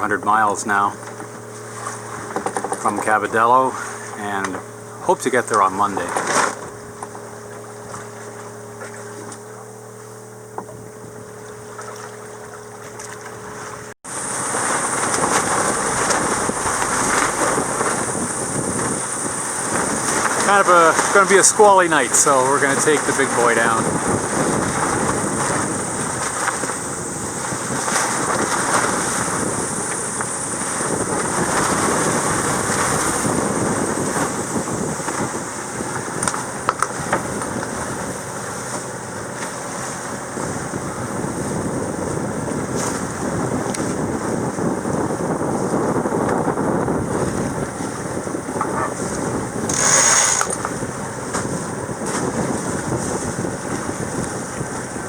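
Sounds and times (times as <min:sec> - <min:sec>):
wind on microphone: 0:00.0 - 0:12.5, 0:13.4 - 0:55.0
water rushing along hull: 0:00.0 - 0:55.0
sharp clicks: 0:49.7 - 0:50.8.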